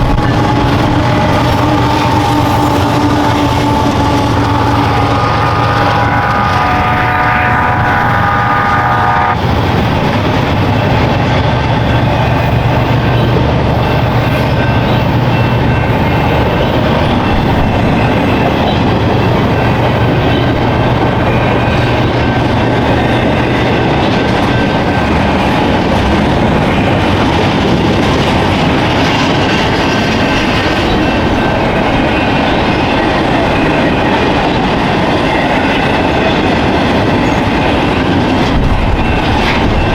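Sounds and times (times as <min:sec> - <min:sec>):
diesel locomotive horn: 0:00.0 - 0:09.5
locomotive engine drone: 0:00.0 - 0:39.9
train cars rumbling on rails: 0:00.0 - 0:39.9.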